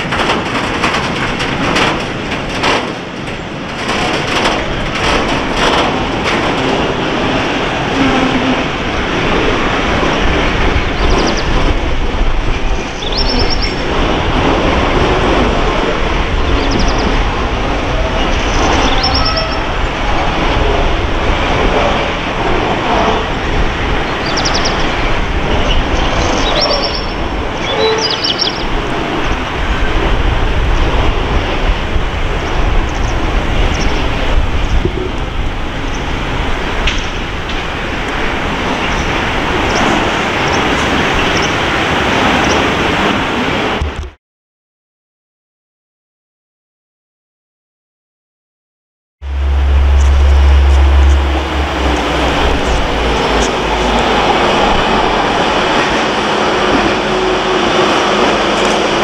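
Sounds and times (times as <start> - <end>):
train rumbling: 0.0 - 44.2, 49.2 - 59.0
train squealing: 3.2 - 31.7, 49.3 - 59.0.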